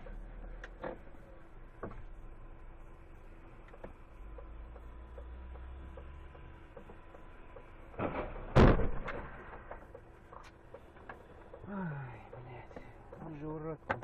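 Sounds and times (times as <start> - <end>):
low car cabin hum: 0.0 - 14.0
light regular ticking: 0.2 - 8.0, 9.5 - 14.0
vehicle collision impact: 5.9 - 11.6.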